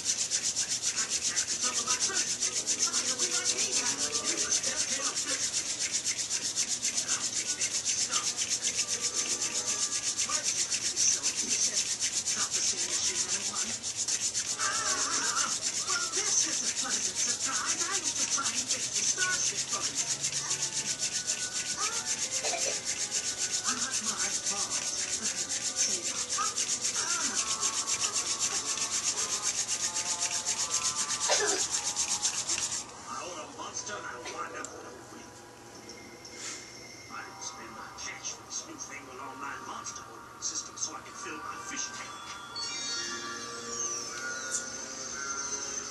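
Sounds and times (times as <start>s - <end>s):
wooden spindle rubbing in socket: 0.0s - 32.9s.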